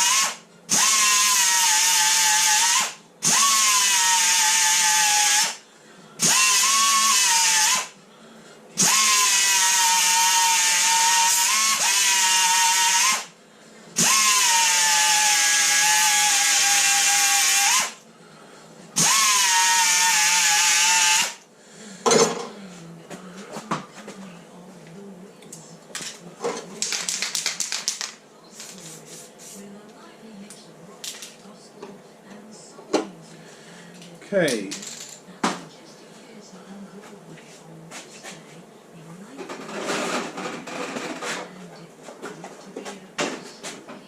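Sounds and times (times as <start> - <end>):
electric grinder whining: 0.0 - 5.6, 6.2 - 7.9, 8.8 - 13.3, 14.0 - 18.0, 19.0 - 21.4.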